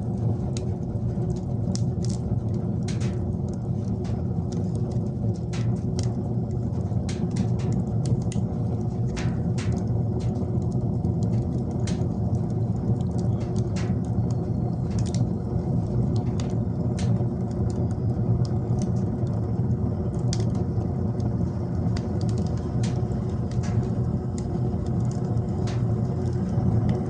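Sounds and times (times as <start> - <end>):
fire crackling: 0.0 - 27.0
fire rumbling in wood stove: 0.0 - 27.0.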